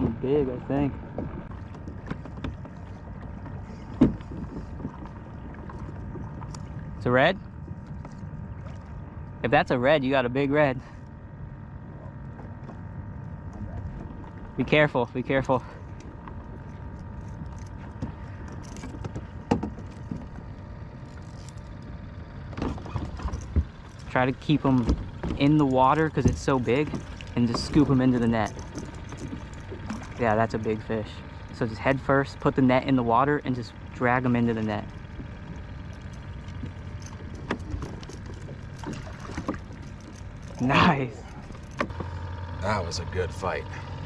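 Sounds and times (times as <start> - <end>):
water and handling noise on kayak: 0.0 - 9.5, 10.6 - 44.0
low steady rumble: 0.0 - 44.0
knocks against kayak hull: 4.0 - 5.0.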